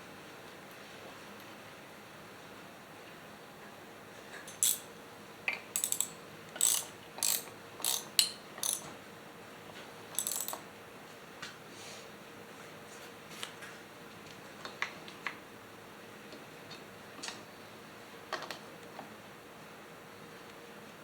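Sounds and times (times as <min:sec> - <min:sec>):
mechanical ratcheting clicks: 0:04.5 - 0:04.9, 0:05.8 - 0:08.9, 0:10.2 - 0:10.6.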